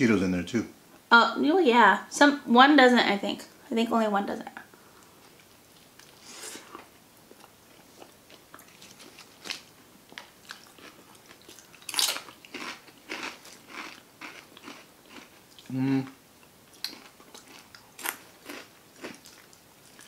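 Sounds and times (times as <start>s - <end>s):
close-miked chewing with crunches: 5.0s - 15.8s, 16.4s - 20.0s.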